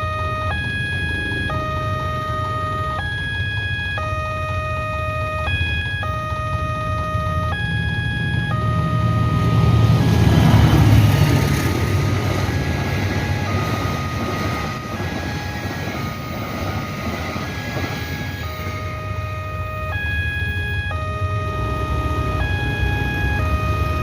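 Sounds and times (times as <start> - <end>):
two-tone crossing warning alarm: 0.0 - 24.0
train rumbling over rails: 0.9 - 2.4, 8.2 - 19.0.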